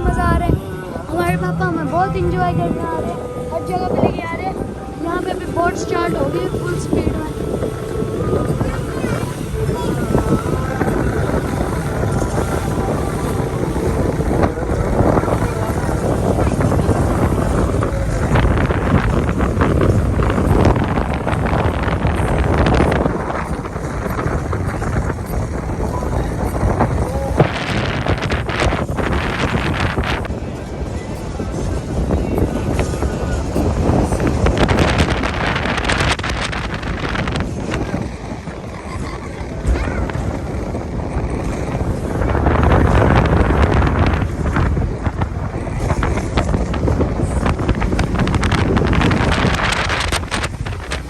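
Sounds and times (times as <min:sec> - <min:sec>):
speedboat motor drone: 0:00.0 - 0:51.0
wind buffeting microphone: 0:00.0 - 0:51.0.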